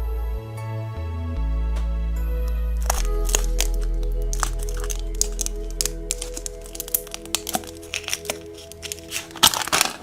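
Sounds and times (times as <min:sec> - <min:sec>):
background music chord: 0:00.0 - 0:09.9
plastic packaging crackling: 0:02.8 - 0:10.0.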